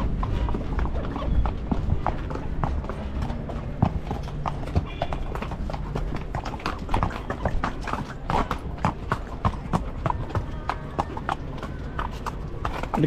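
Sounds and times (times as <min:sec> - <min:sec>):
horse hooves clip-clopping: 0:00.0 - 0:13.0.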